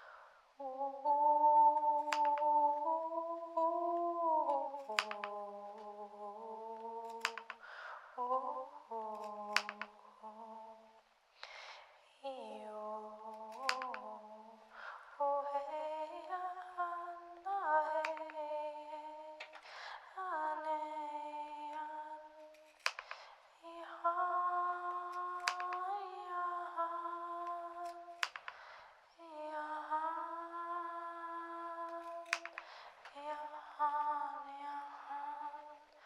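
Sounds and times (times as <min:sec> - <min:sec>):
person humming long notes: 0:00.6 - 0:07.6, 0:08.2 - 0:11.0
sharp clicks: 0:02.0 - 0:02.6, 0:04.7 - 0:05.9, 0:06.8 - 0:07.6, 0:09.1 - 0:10.0, 0:13.3 - 0:14.2, 0:17.9 - 0:18.4, 0:22.5 - 0:23.3, 0:25.1 - 0:26.0, 0:27.4 - 0:28.6, 0:31.9 - 0:32.9.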